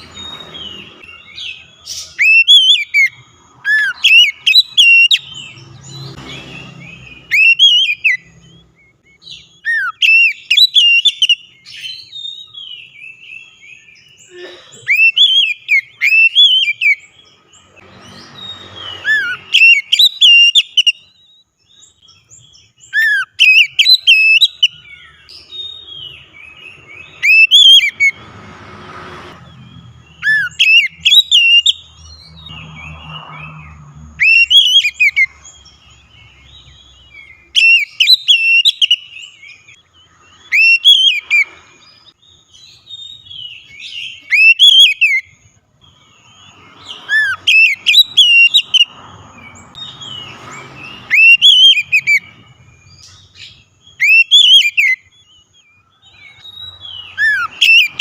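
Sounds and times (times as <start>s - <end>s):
bird singing whistled phrases: 0.1s - 5.3s, 6.8s - 14.2s, 14.8s - 17.0s, 18.2s - 28.1s, 30.0s - 31.9s, 34.2s - 35.3s, 37.1s - 39.8s, 40.4s - 41.6s, 42.4s - 45.3s, 46.2s - 48.9s, 50.8s - 58.0s.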